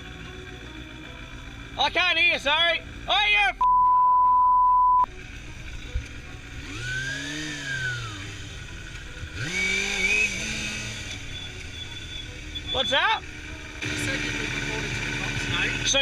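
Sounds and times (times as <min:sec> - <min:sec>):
road traffic hum: 0:00.0 - 0:03.6, 0:05.1 - 0:16.0
censor bleep: 0:03.6 - 0:05.1
engine revving: 0:05.1 - 0:16.0.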